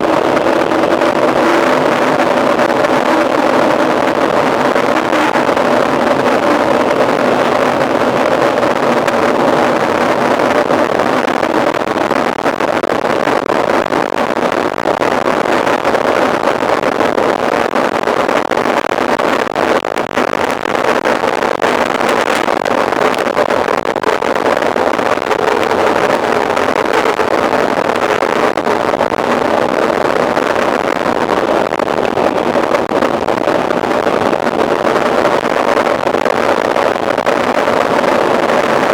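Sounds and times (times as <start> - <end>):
bike tyre noise: 0.0 - 11.2.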